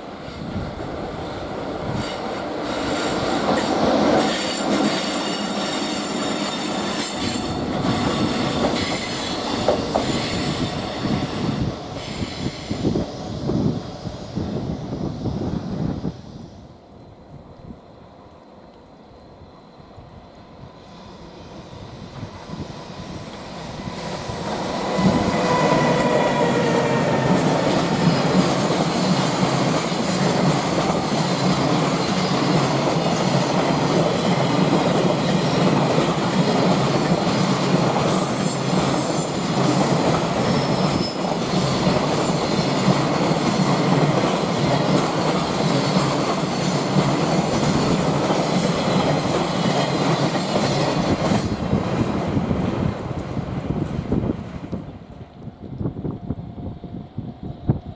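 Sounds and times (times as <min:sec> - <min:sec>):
locomotive whine: 0:00.4 - 0:32.7
train wheels clacking over rail joints: 0:01.9 - 0:11.3.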